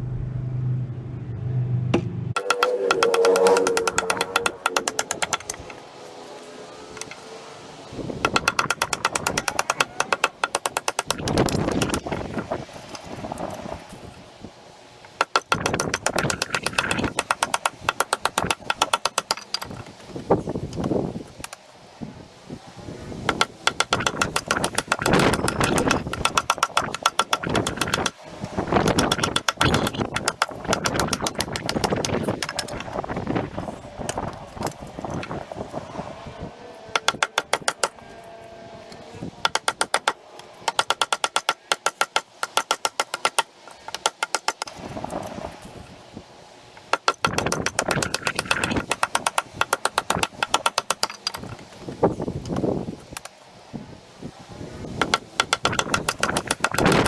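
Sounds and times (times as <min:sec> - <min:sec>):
wooden stick knocking on blade: 0:02.4 - 0:05.6.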